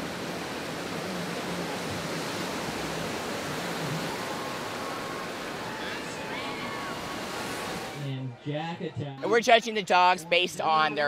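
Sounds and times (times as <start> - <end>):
ocean surf breaking: 0.0 - 8.1.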